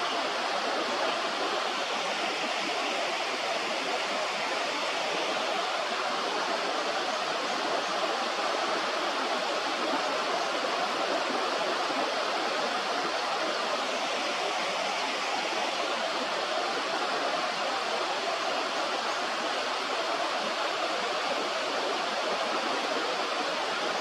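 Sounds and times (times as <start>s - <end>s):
river water flowing: 0.0s - 24.0s.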